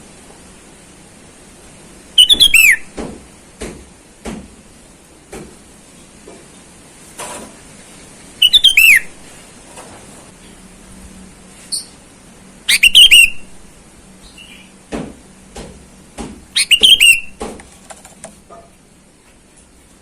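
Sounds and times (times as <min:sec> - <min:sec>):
bulbul singing whistled phrases: 0:02.2 - 0:02.9, 0:08.4 - 0:09.1, 0:12.7 - 0:13.5, 0:16.6 - 0:17.4.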